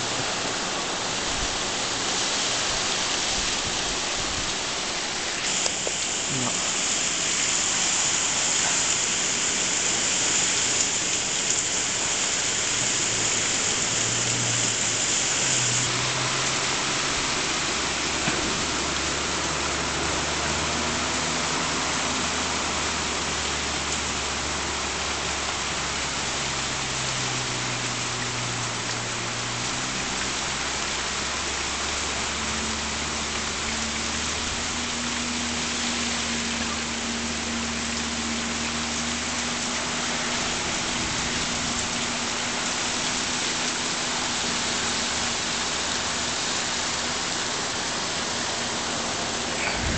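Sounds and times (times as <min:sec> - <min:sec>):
torrential rain pouring: 0:00.0 - 0:49.9
high-pitched hiss: 0:05.3 - 0:15.9.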